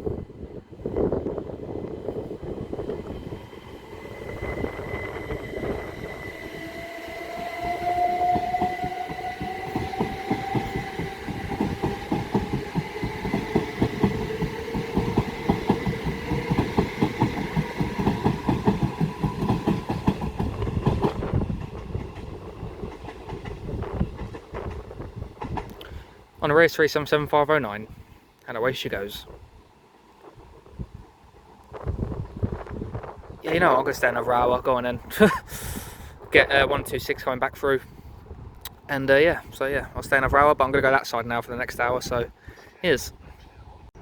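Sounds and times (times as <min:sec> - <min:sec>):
train traction motors whining: 0:00.8 - 0:21.5.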